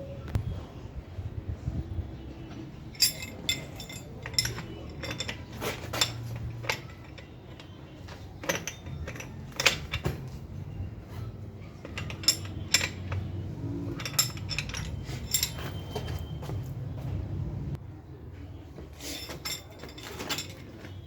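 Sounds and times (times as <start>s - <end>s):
metal tools and bike parts clinking: 2.5s - 16.8s, 18.9s - 21.0s.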